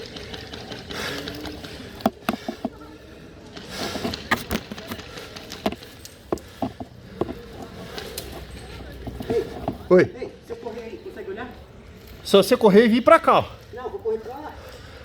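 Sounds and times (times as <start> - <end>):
sharp clicks and knocks: 4.0 - 9.9.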